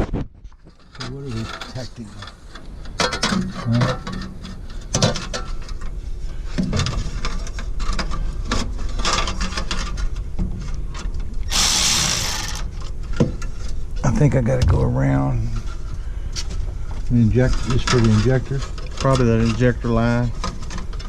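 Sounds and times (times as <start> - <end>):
loud hiss: 11.5 - 12.7
tools clicking and scraping: 11.5 - 12.9
steady low rumble: 13.8 - 17.4.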